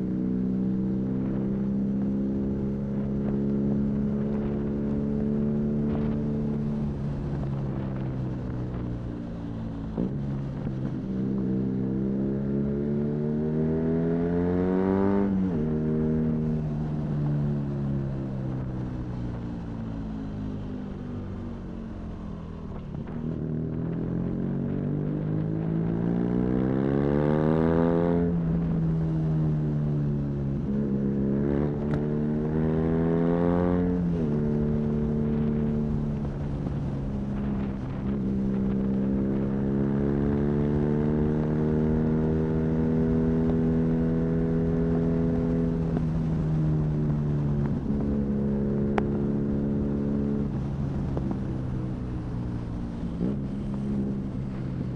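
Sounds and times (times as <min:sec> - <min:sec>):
wind and road noise: 0:00.0 - 0:54.9
motorcycle engine revving: 0:23.6 - 0:54.9.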